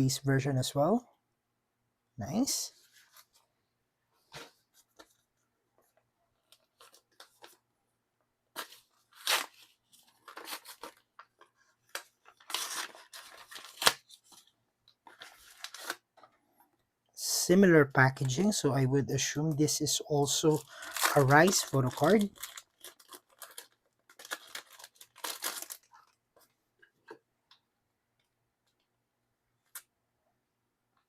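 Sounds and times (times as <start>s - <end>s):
package tearing and rustling: 8.6s - 16.0s, 20.3s - 26.2s.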